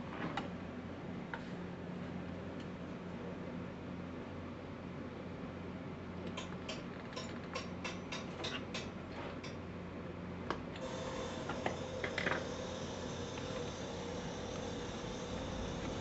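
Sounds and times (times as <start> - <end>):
steady motor tone: 10.8 - 16.0
low steady hum: 11.4 - 16.0.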